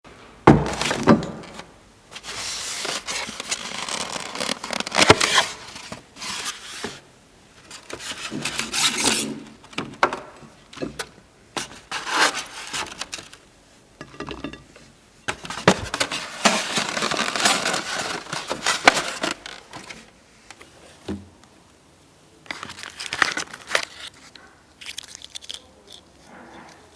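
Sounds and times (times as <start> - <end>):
tableware scraping and clinking: 14.0 - 14.8, 22.5 - 26.9.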